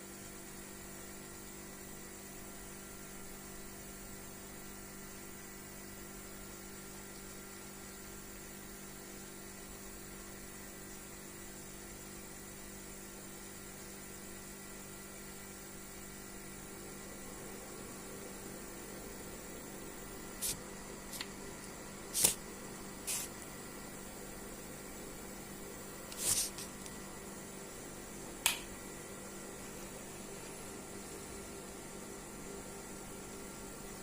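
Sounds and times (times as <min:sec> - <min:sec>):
steady hiss: 0:20.1 - 0:21.4, 0:22.0 - 0:23.5, 0:26.0 - 0:27.0.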